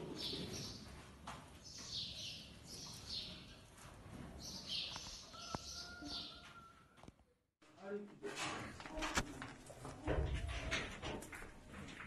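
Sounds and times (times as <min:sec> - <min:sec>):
small birds chirping: 0:01.6 - 0:03.7, 0:04.4 - 0:06.4.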